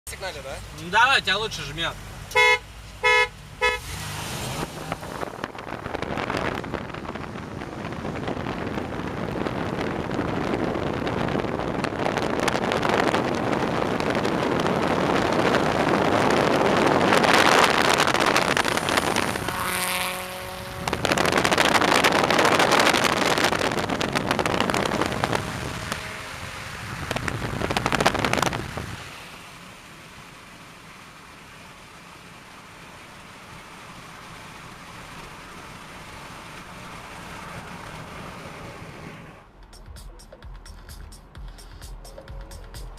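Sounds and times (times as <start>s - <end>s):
car horn toots: 2.3s - 3.9s
wind noise: 3.0s - 29.2s
racing cars accelerating: 3.6s - 5.7s, 15.6s - 29.0s.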